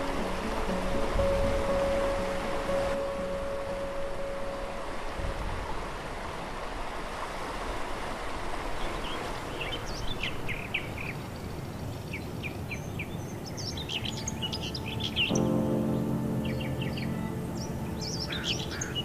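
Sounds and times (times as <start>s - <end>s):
outdoor background rush: 0.0s - 19.0s
birds chirping: 8.8s - 19.0s.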